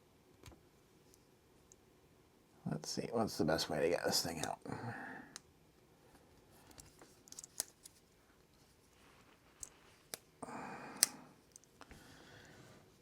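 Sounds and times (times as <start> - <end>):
rustling noise: 6.8 - 10.1.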